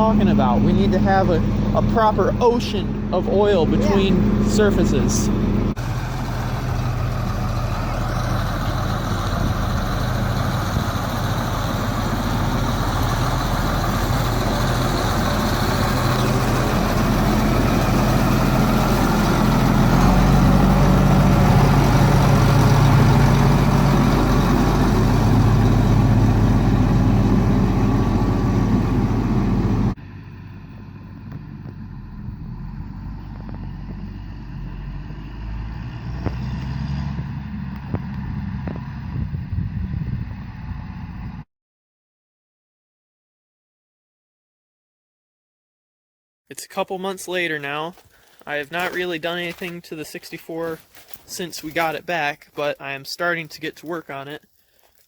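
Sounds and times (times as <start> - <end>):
road and rattle noise: 0.0 - 41.4, 47.4 - 55.0
truck engine drone: 0.0 - 41.4.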